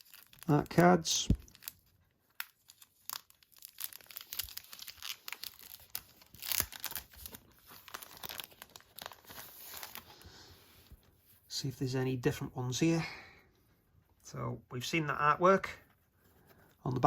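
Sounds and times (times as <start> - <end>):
packaging crinkling and tearing: 0.0 - 10.2.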